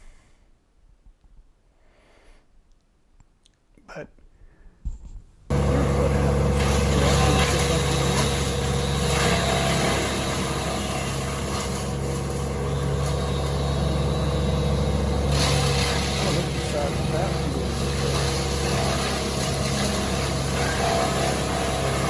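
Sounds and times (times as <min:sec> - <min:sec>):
wood chipper engine running: 0:05.5 - 0:22.0.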